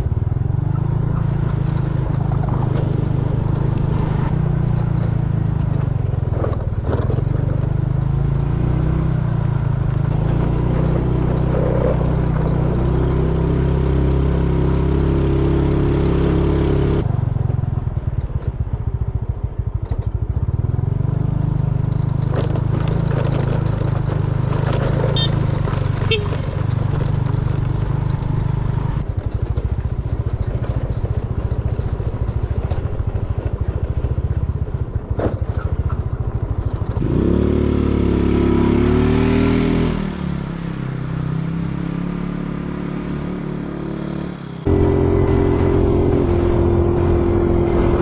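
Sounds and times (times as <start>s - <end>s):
motorcycle engine running: 0.0s - 48.0s
road and wind noise: 0.0s - 48.0s.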